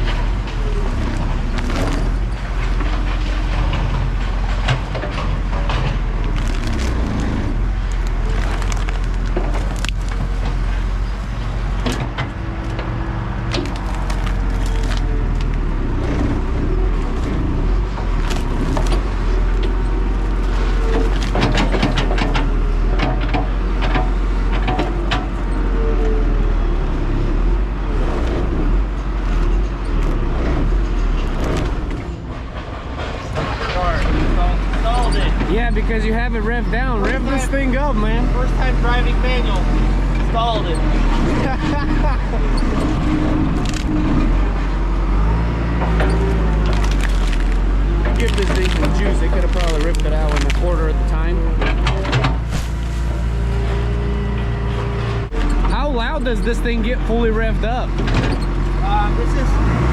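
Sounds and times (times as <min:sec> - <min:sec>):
sharp cracks and knocks: 0:00.0 - 0:11.0, 0:11.7 - 0:25.4, 0:29.3 - 0:35.5, 0:42.6 - 0:44.4, 0:45.7 - 0:50.8, 0:51.6 - 0:53.3
excavator engine drone: 0:00.0 - 0:59.9.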